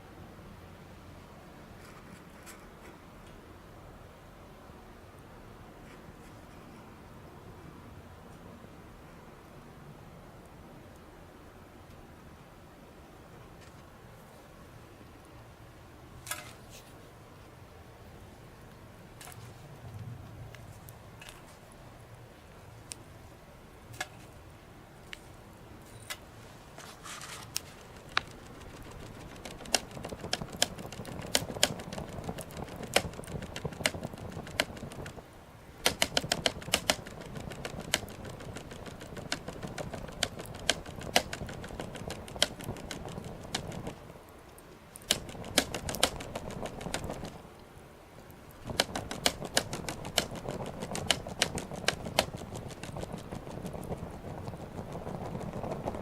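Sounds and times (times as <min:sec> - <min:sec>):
wood fire crackling: 0:26.4 - 0:56.0
low rush of flame: 0:27.2 - 0:47.4, 0:48.4 - 0:56.0.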